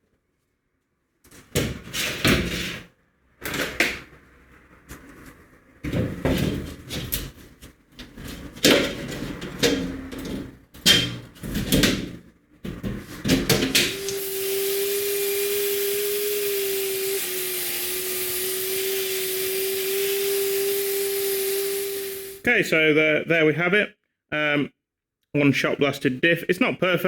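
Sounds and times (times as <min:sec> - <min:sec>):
shot blast cabinet hissing: 0:13.7 - 0:22.5.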